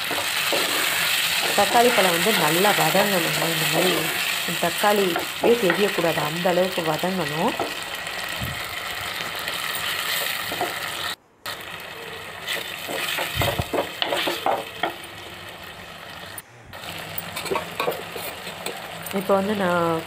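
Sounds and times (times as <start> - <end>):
wooden spoon scraping clay pot: 0.0 - 6.1, 12.5 - 14.9, 17.3 - 18.7
vegetables sizzling in oil: 0.0 - 20.0.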